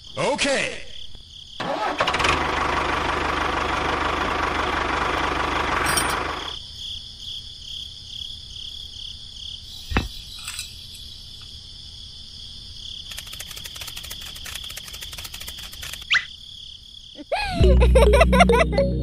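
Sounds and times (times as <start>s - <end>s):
crickets chirping: 0.0s - 1.9s, 5.9s - 17.6s
rapid clicking: 13.1s - 16.1s
music: 17.6s - 19.0s.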